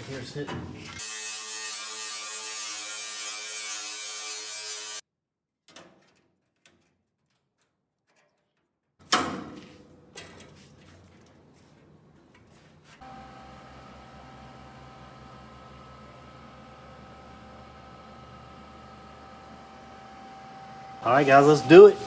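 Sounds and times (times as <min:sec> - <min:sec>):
grinder cutting sheet metal: 0:01.0 - 0:05.0, 0:21.0 - 0:22.0.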